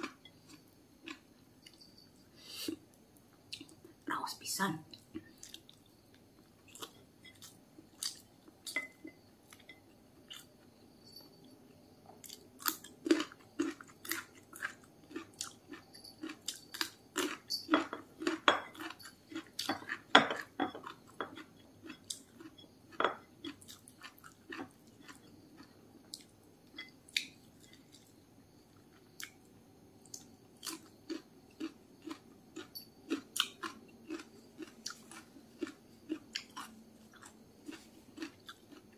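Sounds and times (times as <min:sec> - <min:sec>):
food crunches: 0:00.0 - 0:01.8, 0:06.6 - 0:08.8, 0:12.2 - 0:26.3, 0:30.0 - 0:38.9
chewing rice: 0:00.0 - 0:01.9, 0:04.9 - 0:08.9, 0:09.5 - 0:10.8, 0:12.1 - 0:28.1, 0:30.0 - 0:38.9.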